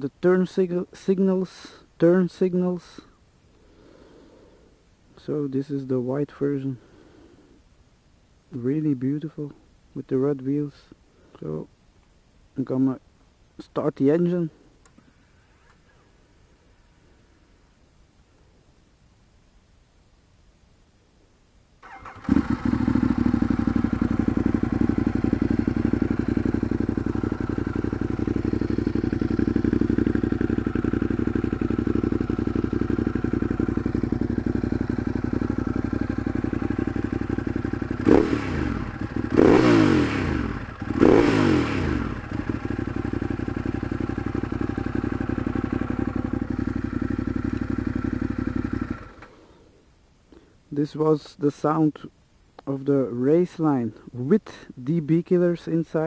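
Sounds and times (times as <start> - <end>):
motorcycle engine idling and revving: 21.8 - 49.6.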